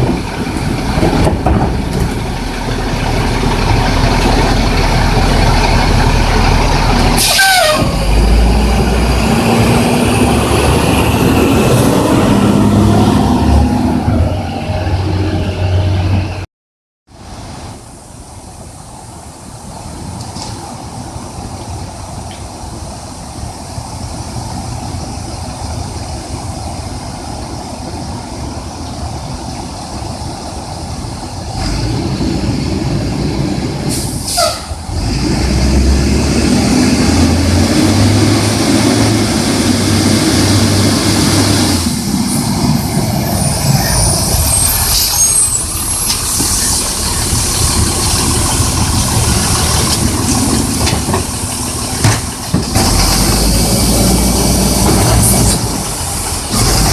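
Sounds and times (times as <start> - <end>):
garbage truck engine revving: 0.0 - 16.4, 31.5 - 56.9
air brake squeal and hiss: 33.9 - 34.9, 43.3 - 47.3.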